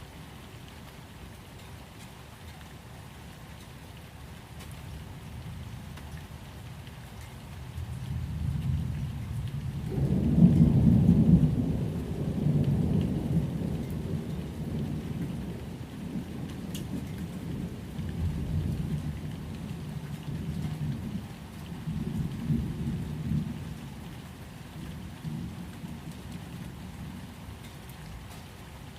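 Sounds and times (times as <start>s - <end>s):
steady rain: 0.0s - 28.9s
rolling thunder: 8.1s - 21.2s.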